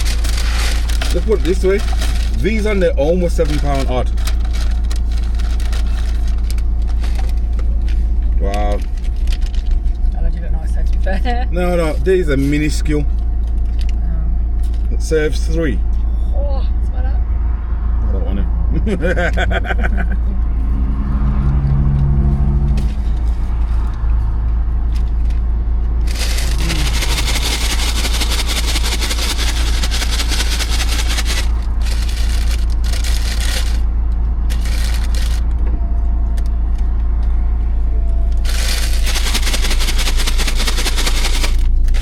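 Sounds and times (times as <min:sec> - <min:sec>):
paper bags rustling: 0:00.0 - 0:08.1, 0:26.1 - 0:33.9, 0:34.5 - 0:35.4, 0:38.4 - 0:42.0
vehicle engine idling: 0:00.0 - 0:17.4, 0:18.0 - 0:42.0.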